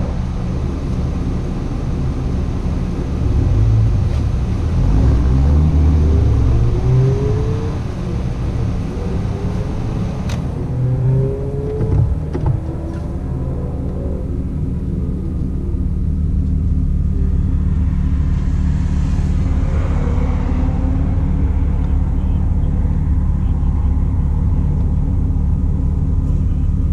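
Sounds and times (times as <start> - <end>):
car engine idling: 0.0 - 4.9, 5.7 - 26.9
car accelerating away: 3.1 - 26.9.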